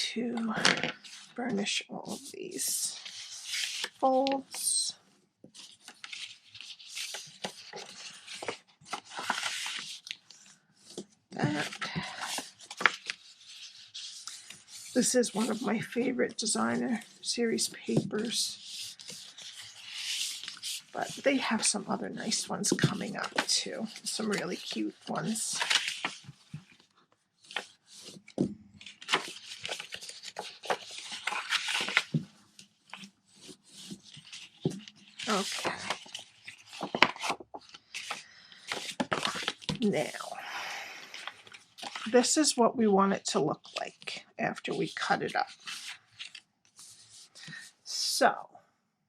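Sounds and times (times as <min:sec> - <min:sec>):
paper rubbing and crinkling: 0:00.3 - 0:04.8, 0:05.5 - 0:40.3, 0:41.1 - 0:42.6, 0:43.6 - 0:47.7.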